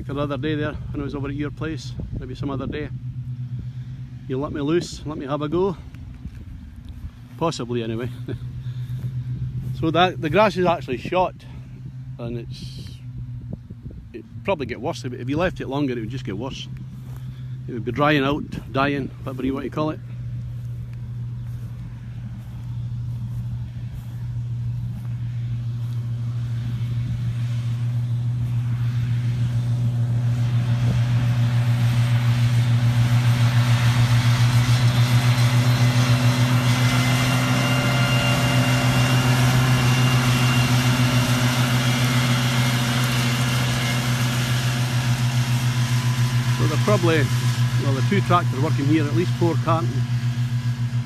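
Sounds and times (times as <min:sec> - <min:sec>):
tractor diesel engine: 0:00.0 - 0:51.0.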